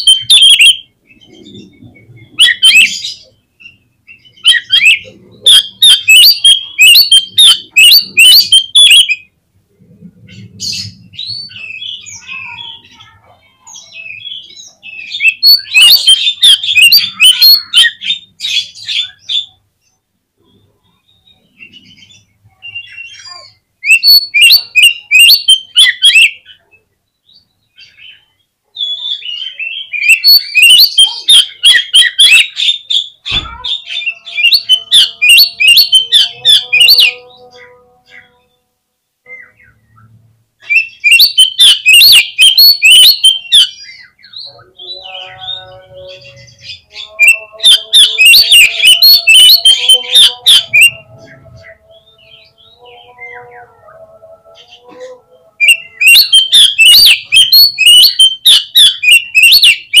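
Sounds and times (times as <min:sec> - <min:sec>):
bird singing rapid chattering notes: 0:00.0 - 0:09.2, 0:13.8 - 0:19.5, 0:22.8 - 0:26.4, 0:29.1 - 0:37.3, 0:40.6 - 0:51.5, 0:55.6 - 1:00.0
sharp knock: 0:33.3 - 0:33.6.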